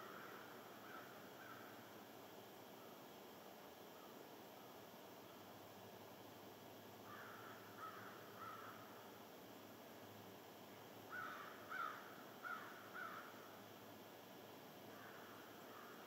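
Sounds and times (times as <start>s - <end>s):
faint bird calls: 0.0s - 2.0s, 3.9s - 4.2s, 7.0s - 9.0s, 11.0s - 13.6s, 14.8s - 16.0s
steady low hiss: 0.0s - 16.0s.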